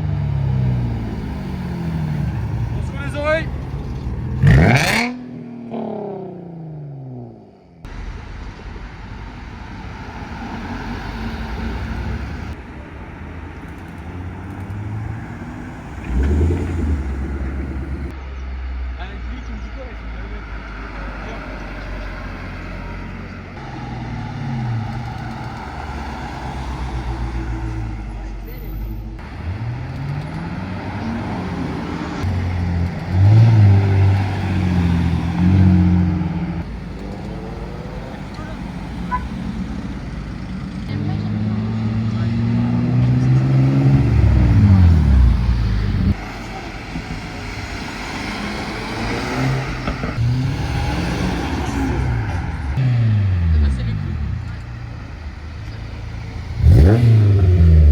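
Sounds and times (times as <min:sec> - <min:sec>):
car engine at low revs: 0:00.0 - 0:18.2, 0:29.2 - 0:57.9.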